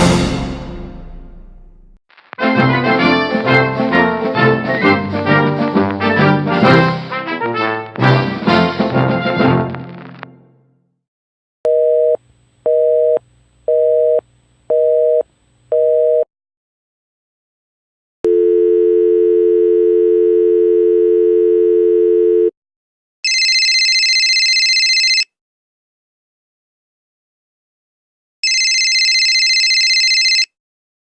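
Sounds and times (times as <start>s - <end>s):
telephone dial tone: 11.7s - 16.2s, 18.3s - 22.5s, 23.3s - 25.3s, 28.4s - 30.5s
telephone busy signal beeps: 18.3s - 22.5s.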